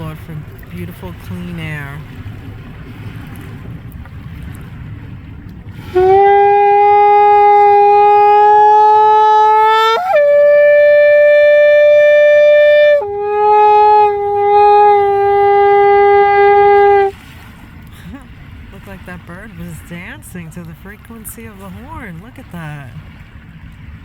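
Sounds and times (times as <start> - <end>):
shofar blast: 5.8 - 17.2.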